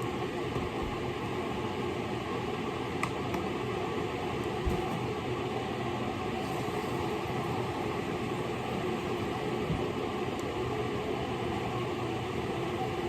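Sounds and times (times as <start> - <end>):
machine hum with whirring: 0.0 - 13.0.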